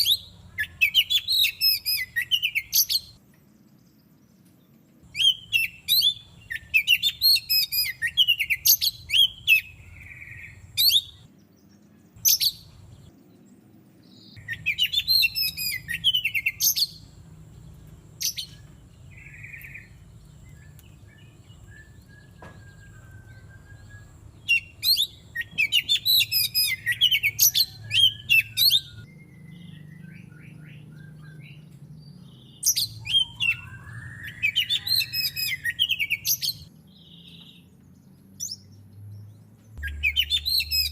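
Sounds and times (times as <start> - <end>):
bird whistles: 0.0 - 3.2, 5.1 - 11.3, 14.4 - 17.0, 21.6 - 31.6, 32.6 - 36.7, 39.8 - 40.9
bird singing chirping phrases: 0.0 - 40.9.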